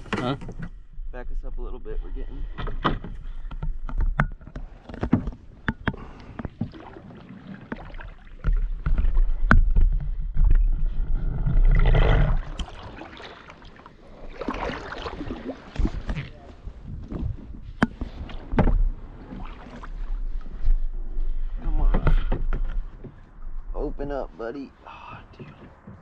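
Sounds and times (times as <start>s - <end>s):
water swishing from paddle strokes: 2.4s - 23.3s
paddle knocking against canoe hull: 2.6s - 10.8s, 11.9s - 20.6s, 21.8s - 23.4s.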